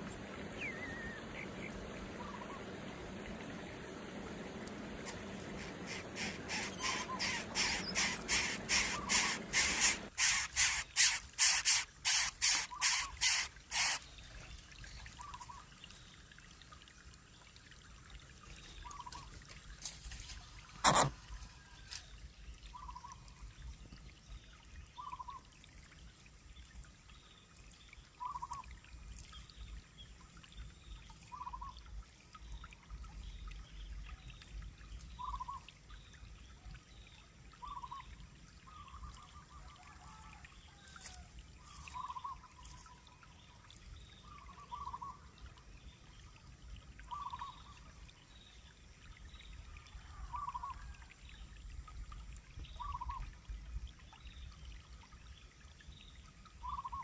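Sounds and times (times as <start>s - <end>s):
young birds of prey calling: 0.4s - 2.7s, 5.5s - 14.0s.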